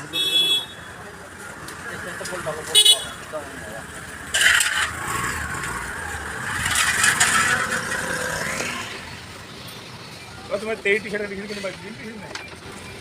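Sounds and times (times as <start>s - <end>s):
motor vehicle passing: 3.8s - 9.5s.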